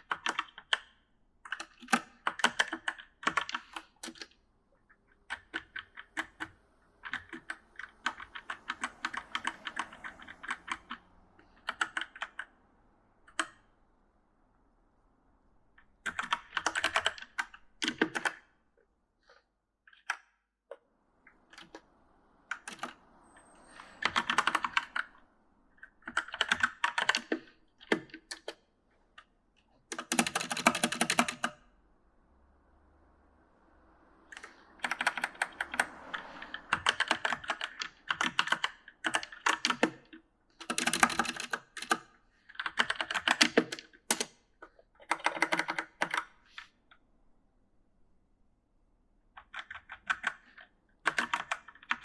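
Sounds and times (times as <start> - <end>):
mechanical keyboard key clicks: 29.9 - 31.5, 40.6 - 42.0, 42.6 - 44.3.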